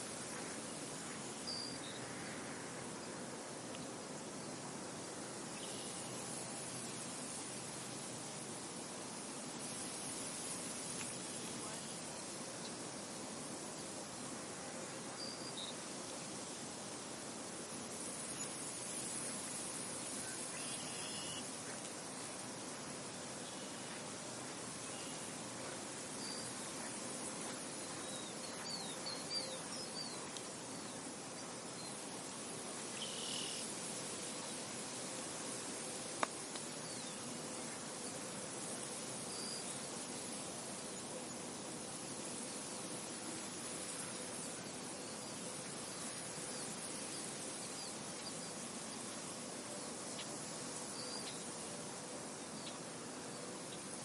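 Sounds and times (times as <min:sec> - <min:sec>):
steady wind: 0:00.0 - 0:54.0
faint bird chirps: 0:01.1 - 0:02.4, 0:20.2 - 0:21.8, 0:27.8 - 0:30.4
small birds chirping: 0:26.1 - 0:32.0.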